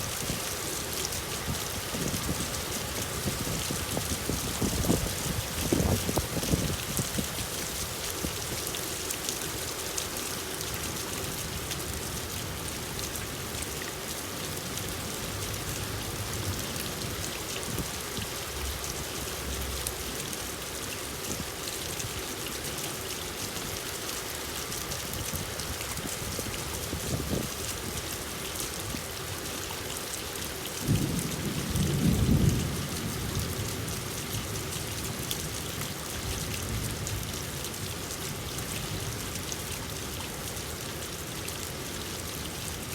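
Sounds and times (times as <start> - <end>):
steady rain: 0.0 - 42.9
low rumble of thunder: 30.8 - 34.6.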